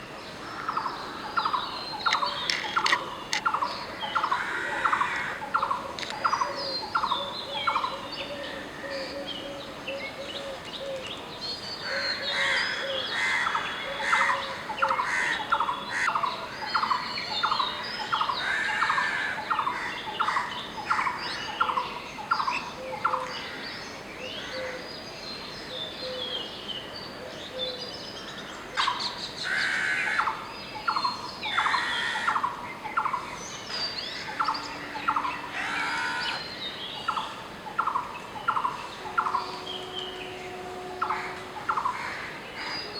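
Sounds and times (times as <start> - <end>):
birds chirping: 0.8 - 18.9, 30.7 - 42.9
barbet calling repeated note: 38.5 - 42.9.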